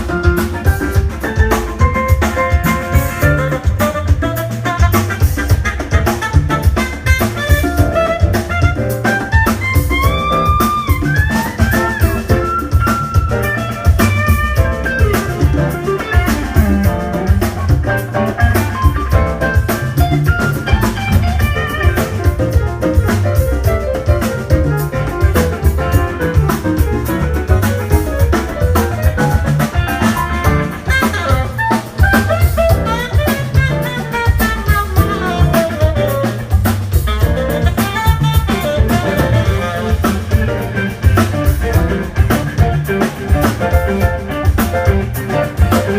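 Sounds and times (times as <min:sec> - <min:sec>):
melodic lead line: 0:00.0 - 0:04.6
bass guitar groove: 0:00.0 - 0:45.9
drum kit groove: 0:00.0 - 0:45.9.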